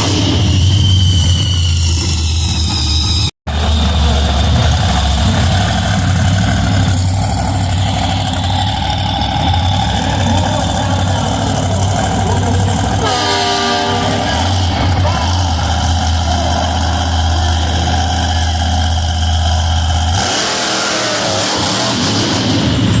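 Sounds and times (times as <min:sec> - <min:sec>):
monster truck engine idling: 0:00.0 - 0:23.0.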